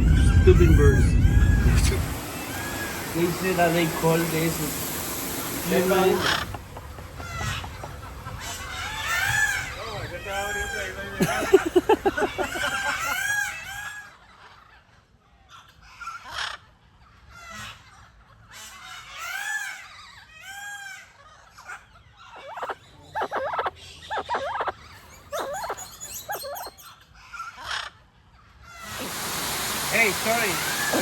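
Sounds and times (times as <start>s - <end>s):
rapid harsh bird calls: 0.0s - 14.1s, 18.6s - 27.8s, 28.6s - 31.0s
rising and falling bird calls: 0.0s - 14.1s, 22.2s - 27.4s.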